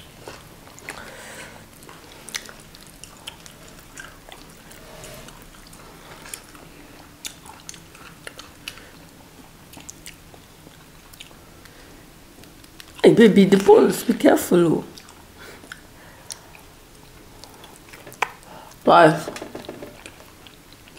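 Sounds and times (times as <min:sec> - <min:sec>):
people chewing food: 0:00.0 - 0:13.8, 0:14.9 - 0:18.8, 0:19.5 - 0:20.9.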